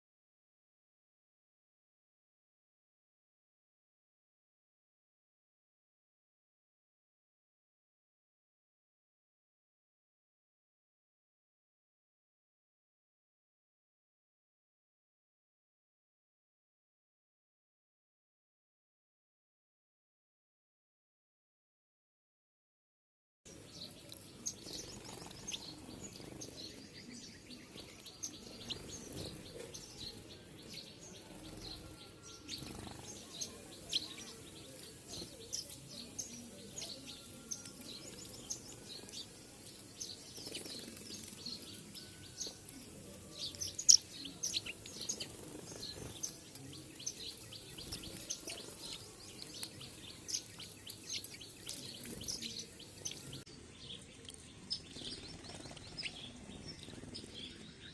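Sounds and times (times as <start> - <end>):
small birds chirping: 23.5 - 57.9.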